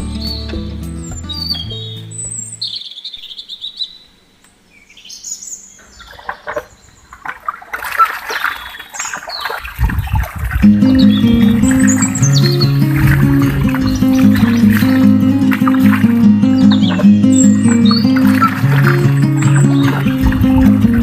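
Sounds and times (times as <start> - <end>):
background music: 0.0 - 2.6, 10.6 - 21.0
birds chirping and calling: 0.2 - 4.1, 4.8 - 21.0.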